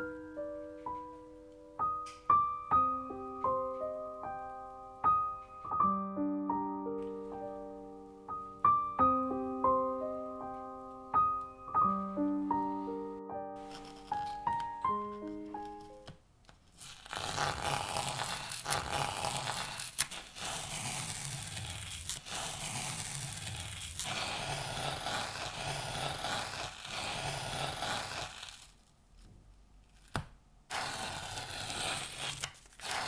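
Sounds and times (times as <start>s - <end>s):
tape tearing off canvas: 13.6s - 28.9s, 30.0s - 33.0s.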